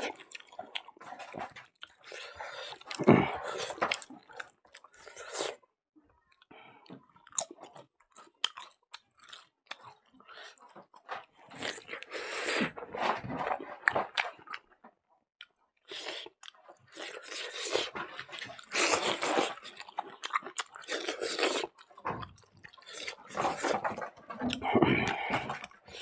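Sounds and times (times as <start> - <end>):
chewing food: 0.0 - 5.6, 6.2 - 14.8, 15.4 - 26.0.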